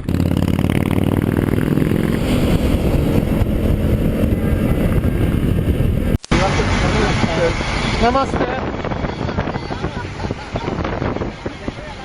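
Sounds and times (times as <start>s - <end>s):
motorcycle engine under throttle: 0.0s - 6.6s.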